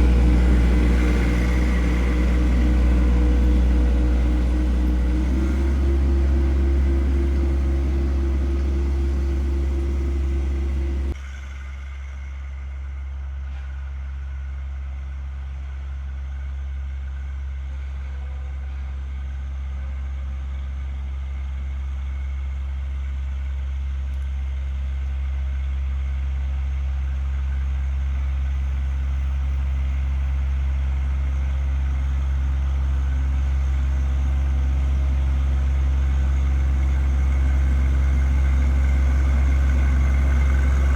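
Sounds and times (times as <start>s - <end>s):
high steady whine: 0.0s - 11.2s
tractor diesel engine running: 0.0s - 12.8s, 23.7s - 40.9s.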